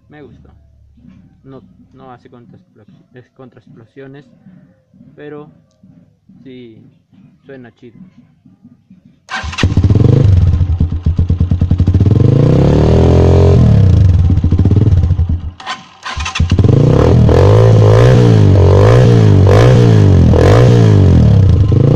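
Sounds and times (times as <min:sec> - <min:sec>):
motorcycle engine revving: 0:09.3 - 0:21.9.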